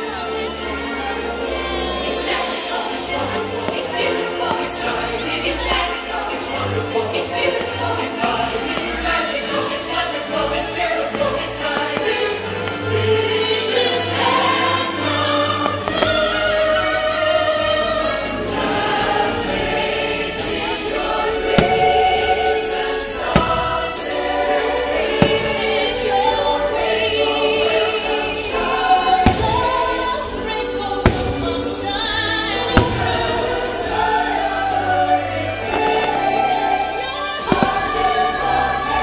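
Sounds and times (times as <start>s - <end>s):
choir singing over orchestral music: 0.0s - 39.0s
firework bangs: 7.2s - 17.5s, 18.6s - 39.0s.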